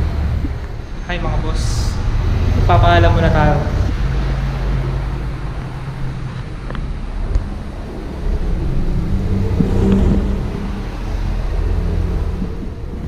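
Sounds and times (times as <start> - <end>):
road traffic rumble: 0.0 - 13.0
vehicle engine humming: 0.0 - 13.0
wind on microphone: 0.0 - 13.0.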